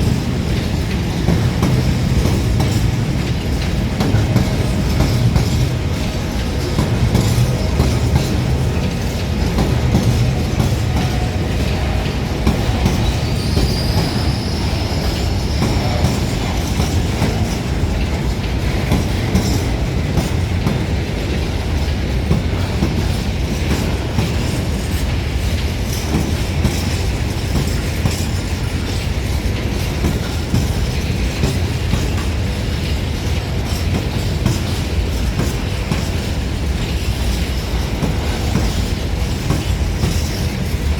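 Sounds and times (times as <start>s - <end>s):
train rolling on rails: 0.0s - 40.9s
wheels clicking over rail joints: 0.0s - 40.9s
faint high wheel squeal: 11.0s - 17.0s.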